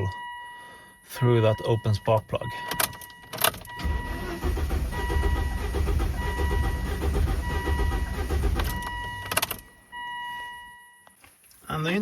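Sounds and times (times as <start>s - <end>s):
starter motor cranking engine: 3.8s - 8.8s.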